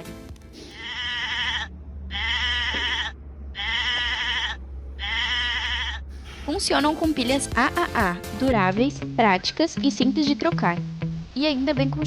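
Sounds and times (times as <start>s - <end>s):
recorded farm animal bleating: 0.6s - 6.9s.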